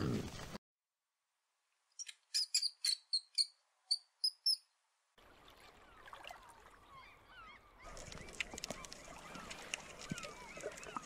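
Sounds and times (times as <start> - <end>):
mouse squeaking: 2.0 - 4.6.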